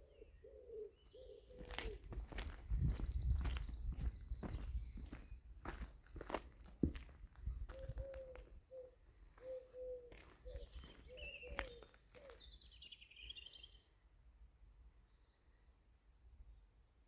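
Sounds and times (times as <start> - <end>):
bird chirps: 0.0 - 2.0, 2.7 - 5.4, 7.8 - 14.0
bird cooing: 0.0 - 2.1, 7.7 - 12.6.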